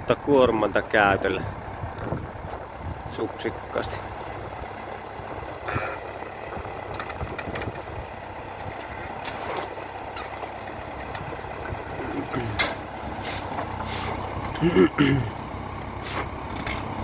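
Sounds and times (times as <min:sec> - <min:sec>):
tractor diesel engine running: 0:00.0 - 0:17.0
short metal clanks: 0:12.2 - 0:15.1.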